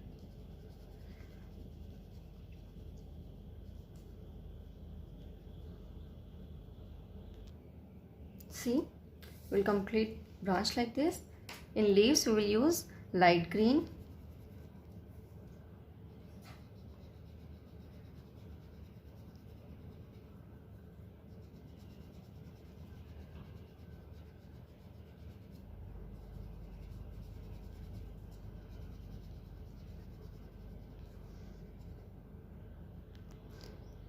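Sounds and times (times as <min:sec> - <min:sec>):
crayon scratching on paper: 0:16.6 - 0:20.4, 0:21.2 - 0:32.1.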